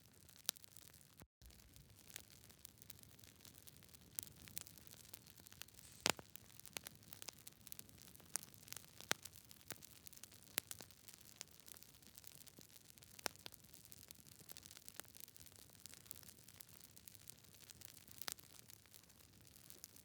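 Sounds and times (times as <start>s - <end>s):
campfire crackling: 1.4s - 19.9s
faint fire hiss: 5.6s - 6.7s.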